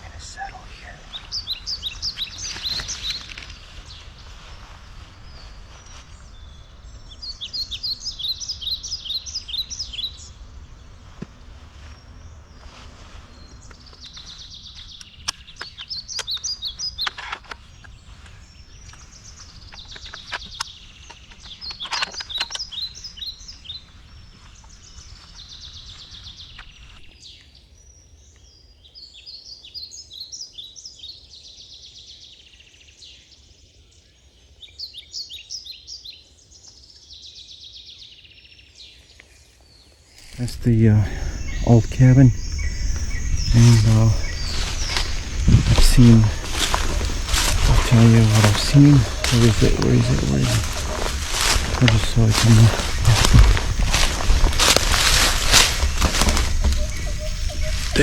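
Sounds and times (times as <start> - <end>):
songbird trilling: 0.0 - 27.2, 40.2 - 58.0.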